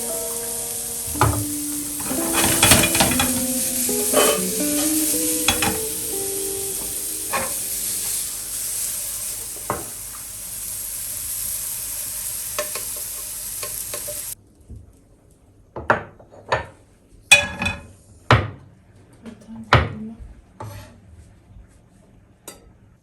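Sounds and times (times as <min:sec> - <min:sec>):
food sizzling in a pan: 0:00.0 - 0:14.4
plates and cutlery clinking: 0:01.1 - 0:10.0, 0:12.6 - 0:14.3, 0:17.3 - 0:17.9
utensil taps: 0:09.6 - 0:10.2.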